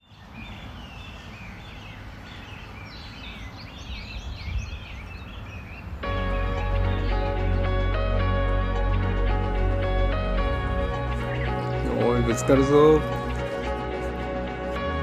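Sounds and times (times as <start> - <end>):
low outdoor background noise: 0.0 - 7.7, 9.4 - 15.0
wild birds singing: 0.0 - 8.0, 9.3 - 15.0
gentle background music: 6.0 - 15.0.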